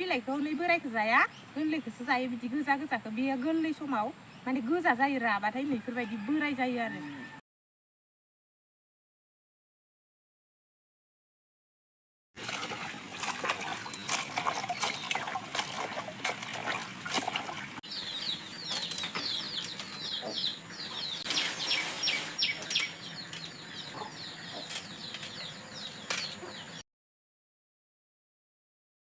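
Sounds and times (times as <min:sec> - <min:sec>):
high falling chirps of birds: 0:17.8 - 0:26.8
rustling: 0:21.0 - 0:23.5.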